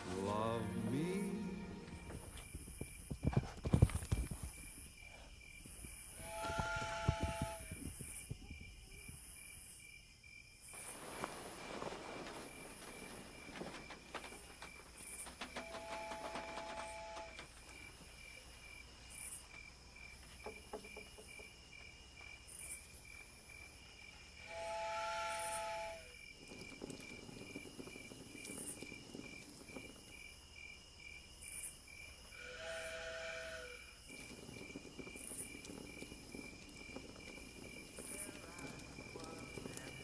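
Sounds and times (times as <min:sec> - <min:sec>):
crickets chirping: 0:00.0 - 0:40.0
train whistle blast: 0:06.2 - 0:07.6, 0:24.4 - 0:26.2, 0:32.4 - 0:33.8.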